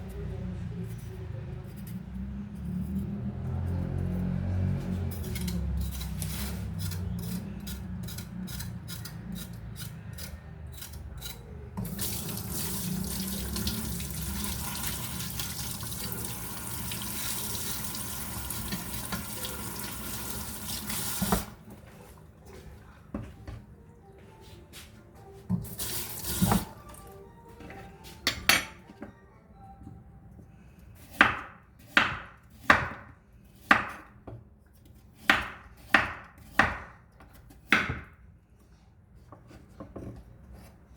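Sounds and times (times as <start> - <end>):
tap running water into sink: 11.8 - 21.6.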